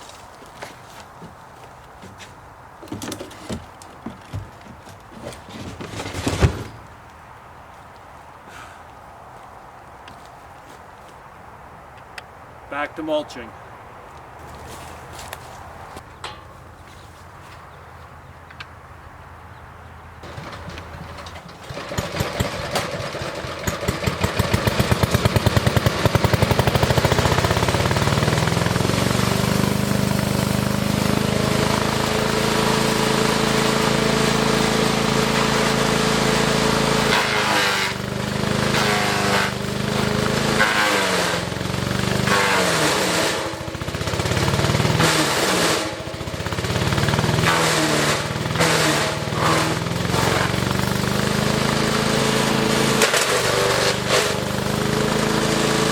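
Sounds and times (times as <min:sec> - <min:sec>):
wood chipper engine: 0:20.2 - 0:55.9.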